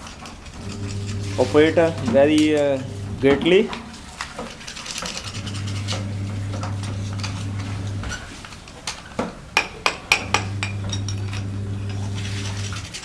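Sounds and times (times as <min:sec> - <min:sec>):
low electric hum: 0:00.5 - 0:03.6, 0:05.2 - 0:08.3, 0:10.2 - 0:13.0
metal burner parts clinking: 0:10.2 - 0:13.0.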